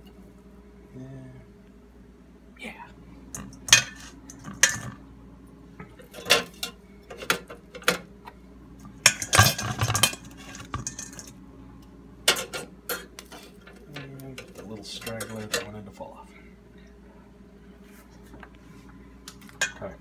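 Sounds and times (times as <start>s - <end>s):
metal utensils clinking on dishes: 3.4s - 5.0s, 6.0s - 8.0s, 9.0s - 11.3s, 12.3s - 15.8s, 19.4s - 19.9s.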